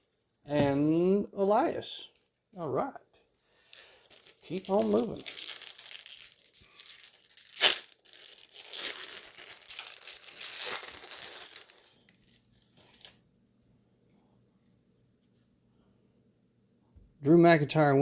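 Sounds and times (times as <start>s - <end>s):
foil wrapper crinkling: 3.5s - 13.2s
wrapper ripping: 3.6s - 13.2s.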